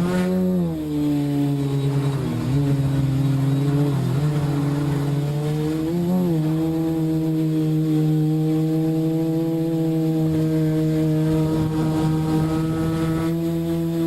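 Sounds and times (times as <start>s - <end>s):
drone propellers humming: 0.0s - 14.0s.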